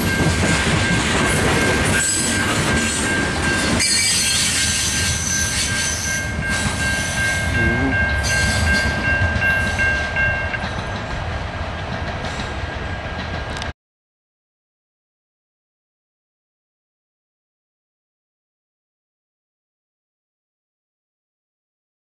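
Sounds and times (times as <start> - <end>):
train cars rumbling on track: 0.0 - 13.7.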